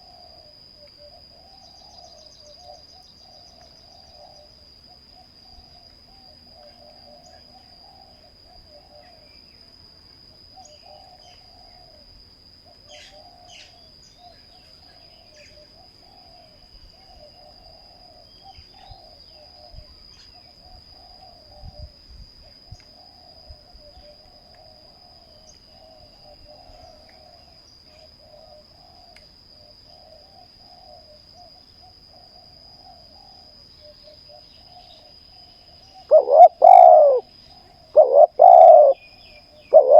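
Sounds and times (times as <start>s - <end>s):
high-pitched insect whine: 0.0s - 39.9s
doves cooing: 36.0s - 39.0s, 39.6s - 39.9s.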